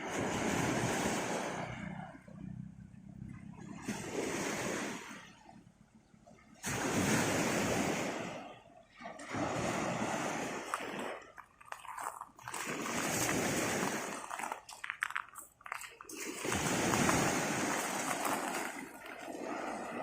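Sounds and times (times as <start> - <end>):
sea surf washing onto shore: 0.0 - 2.0, 6.6 - 8.4, 9.2 - 20.0.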